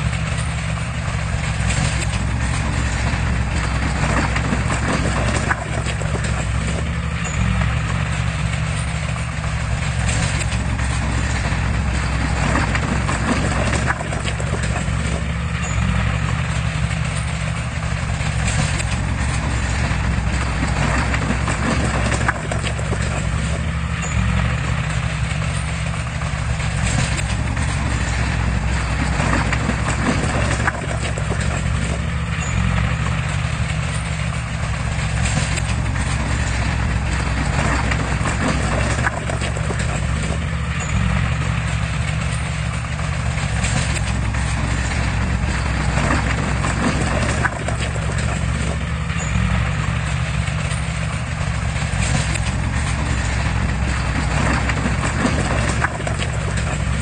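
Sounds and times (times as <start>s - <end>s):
diesel engine running: 0.0s - 57.0s
clattering knocks: 0.2s - 57.0s.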